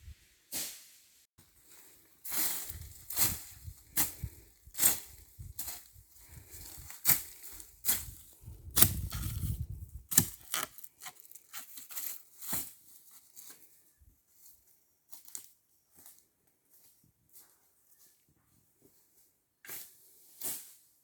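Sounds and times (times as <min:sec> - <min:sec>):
dry leaves and twigs crackling: 0:01.4 - 0:16.2.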